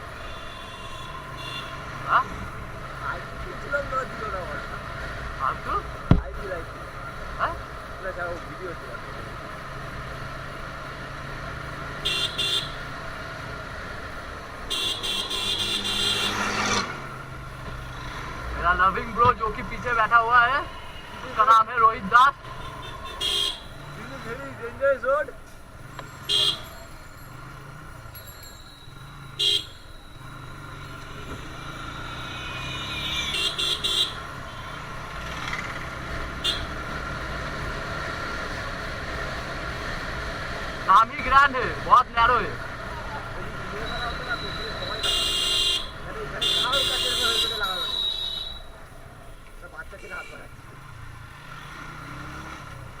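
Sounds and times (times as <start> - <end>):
motorcycle engine and road hum: 0.0 - 53.0
vehicle horn honking: 0.2 - 2.0, 12.0 - 12.9, 14.7 - 16.9, 22.4 - 24.0, 26.2 - 26.9, 29.3 - 30.1, 32.6 - 34.8, 36.3 - 37.0, 43.7 - 48.8
motorcycle engine running: 22.3 - 47.0.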